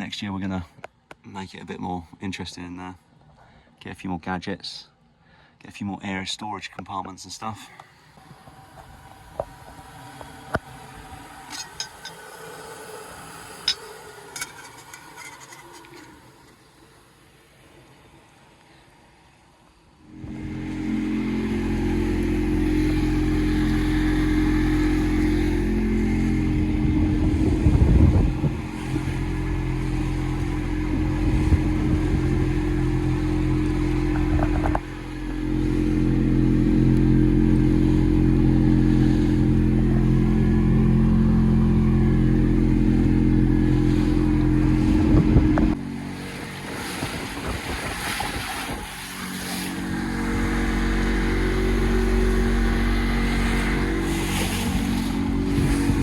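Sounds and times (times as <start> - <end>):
outboard motor running: 7.8 - 17.3, 20.0 - 56.0
noisy bursts: 20.0 - 56.0.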